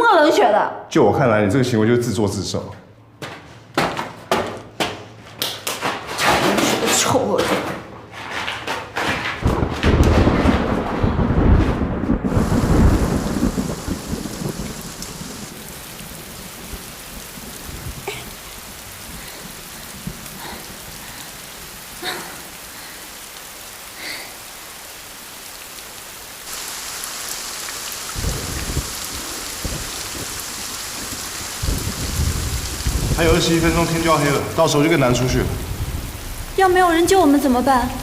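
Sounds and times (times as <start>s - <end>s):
thunder rumbling: 9.4s - 22.9s, 26.5s - 38.0s
steady rainfall: 9.4s - 38.0s.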